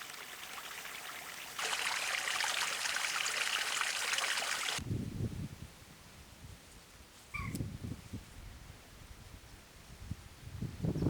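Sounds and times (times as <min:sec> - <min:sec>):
stream trickling: 0:00.0 - 0:04.8.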